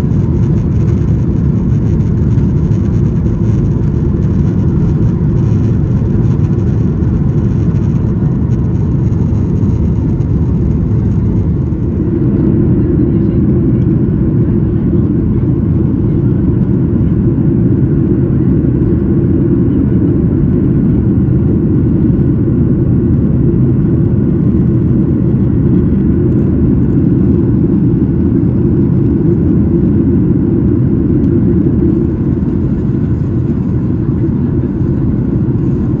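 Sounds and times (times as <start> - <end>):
airplane cabin engine rumble: 0.0 - 36.0.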